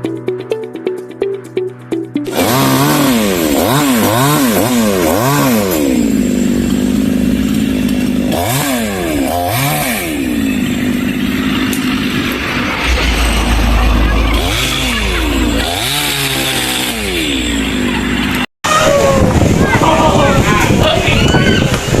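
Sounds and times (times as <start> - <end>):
chainsaw engine revving: 2.3 - 18.4.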